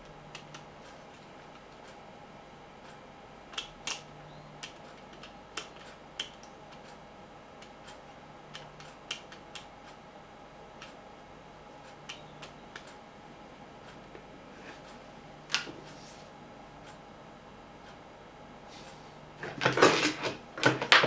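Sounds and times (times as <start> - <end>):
plastic parts clicking and tapping: 19.4 - 21.0.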